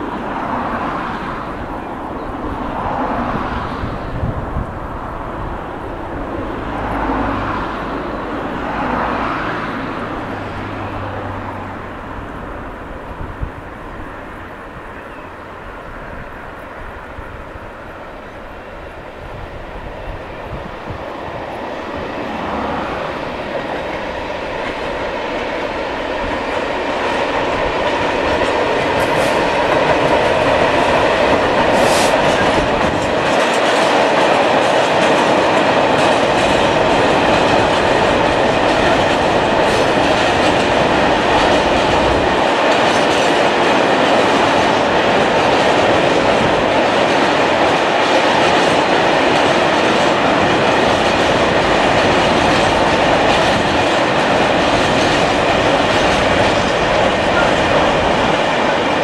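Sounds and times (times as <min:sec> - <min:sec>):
freight train wheels rumbling: 0:00.0 - 0:59.0
wheels clattering over rail joints: 0:20.7 - 0:59.0.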